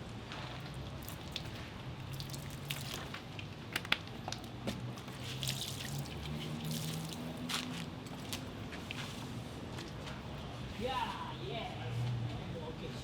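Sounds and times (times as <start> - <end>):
water dripping and spattering: 0.3 - 8.4.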